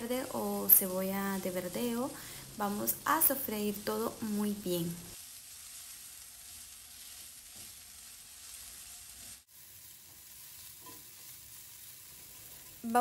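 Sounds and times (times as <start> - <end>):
vegetables sizzling in oil: 0.0 - 13.0
spatula stirring in pan: 5.2 - 13.0.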